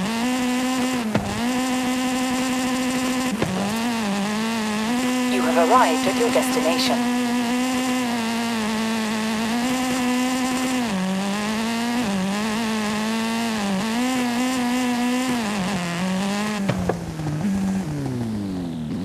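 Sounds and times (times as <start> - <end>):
video game car engine: 0.0 - 19.0.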